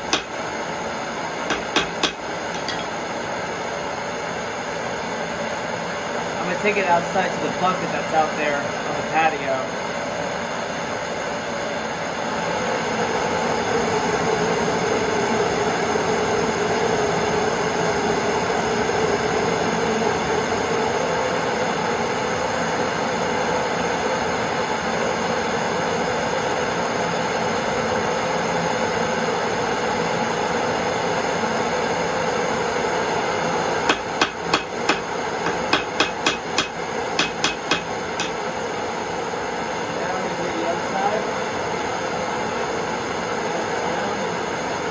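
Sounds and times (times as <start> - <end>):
hammer blows on metal anvil: 0.1 - 0.4, 1.5 - 3.0, 33.9 - 38.4.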